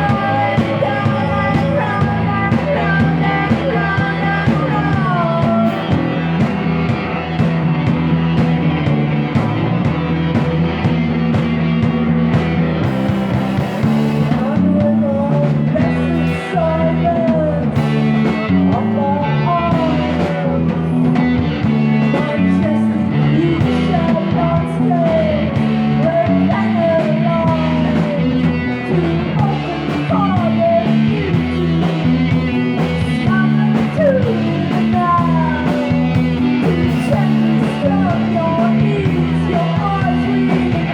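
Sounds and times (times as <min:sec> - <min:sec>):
lead guitar bending notes: 0:00.0 - 0:15.0
bass line: 0:00.0 - 0:40.9
rock band playing live: 0:00.0 - 0:40.9.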